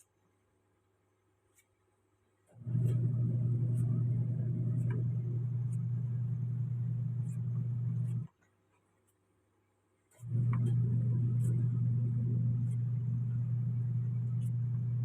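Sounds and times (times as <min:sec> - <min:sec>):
electric appliance hum: 0:02.5 - 0:08.3, 0:10.2 - 0:15.0.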